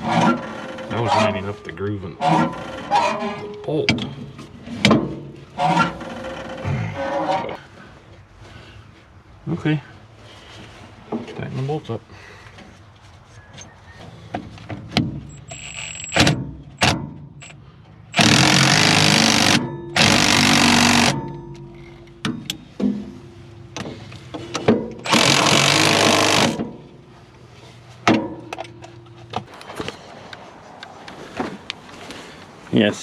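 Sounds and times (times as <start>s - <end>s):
impact wrench hammering: 18.2s - 22.9s, 24.5s - 26.8s.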